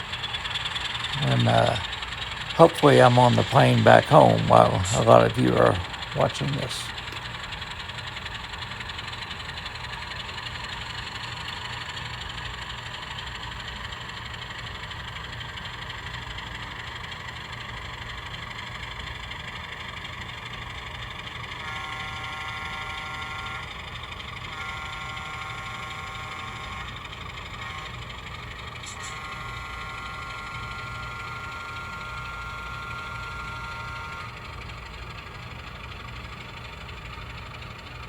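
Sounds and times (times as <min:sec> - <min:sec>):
diesel engine rumble: 0:00.6 - 0:07.2
locomotive horn chord: 0:28.8 - 0:30.8.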